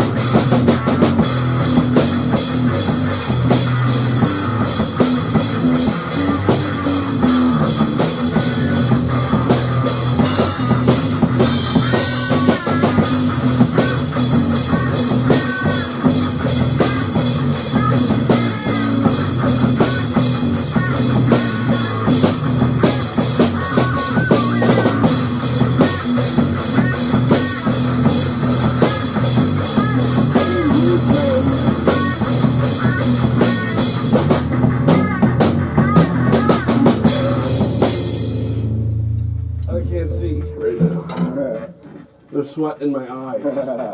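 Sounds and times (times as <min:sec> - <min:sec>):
instrumental rock music: 0:00.0 - 0:42.4.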